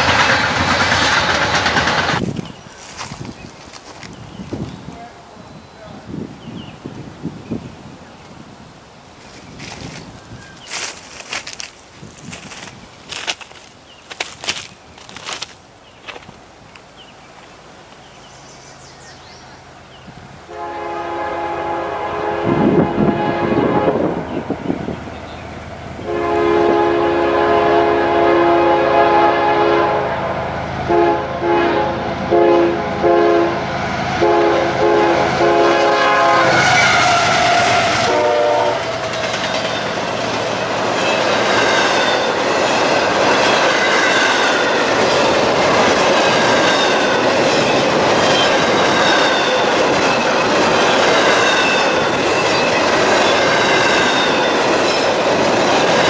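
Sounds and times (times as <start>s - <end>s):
wheels rushing on rail: 0.0s - 5.0s, 5.6s - 56.0s
train horn blasts: 20.4s - 24.6s, 26.0s - 39.0s.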